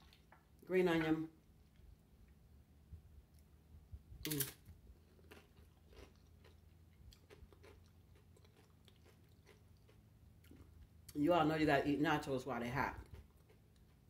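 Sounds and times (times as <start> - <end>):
chewing crunchy chips: 4.2 - 11.2, 13.0 - 14.0.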